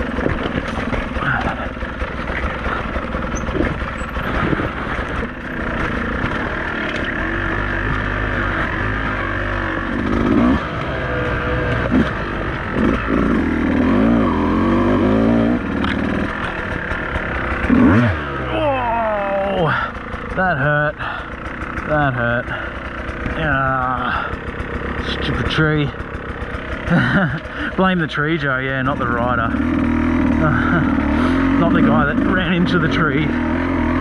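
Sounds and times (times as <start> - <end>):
bike knocks and clatter: 0.0 - 8.0
motorcycle engine revving: 0.0 - 34.0.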